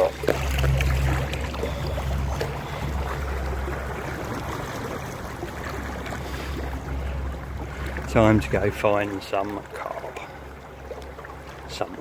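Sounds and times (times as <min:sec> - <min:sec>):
car engine drone: 0:00.0 - 0:05.4.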